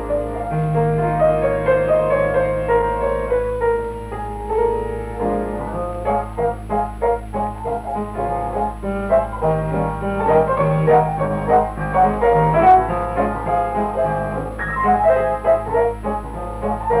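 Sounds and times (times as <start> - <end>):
piano film score: 0.0 - 17.0
steady low hum: 0.0 - 17.0.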